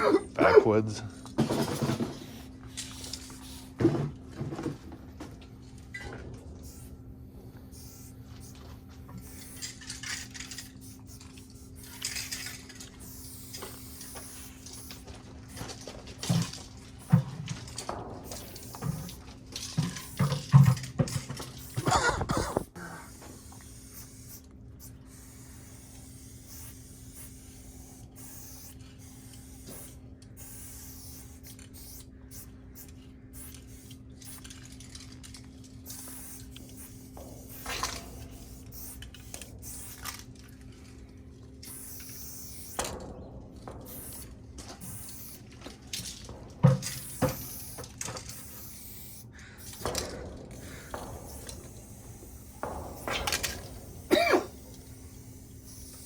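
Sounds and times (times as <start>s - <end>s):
spray paint can hissing: 1.8s - 3.8s, 6.5s - 40.3s, 41.6s - 43.1s, 43.8s - 56.0s.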